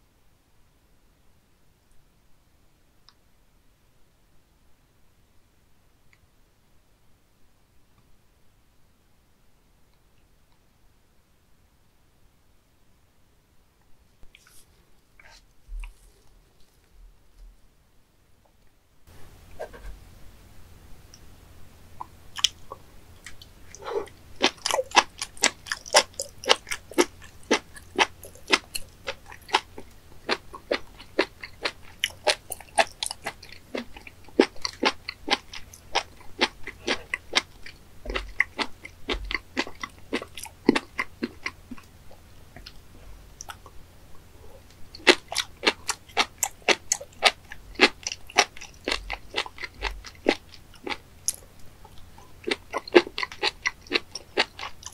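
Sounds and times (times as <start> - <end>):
crunchy chewing: 14.3 - 16.9, 22.0 - 54.9.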